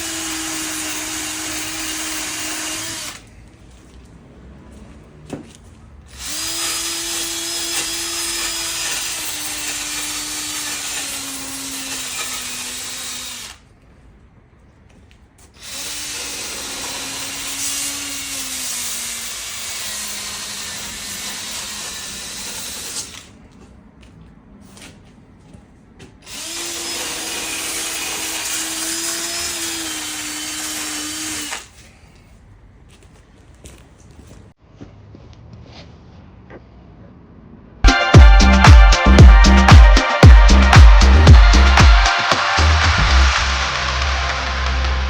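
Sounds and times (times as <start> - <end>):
handheld electric power tool running: 0.0 - 3.2, 6.1 - 13.6, 15.6 - 23.3, 26.3 - 31.8.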